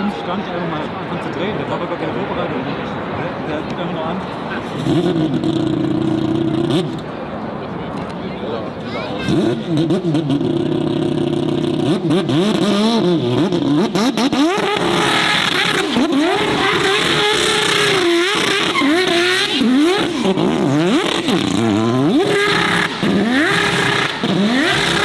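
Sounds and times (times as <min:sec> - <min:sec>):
car engine revving hard: 0:04.6 - 0:07.2, 0:09.2 - 0:25.0.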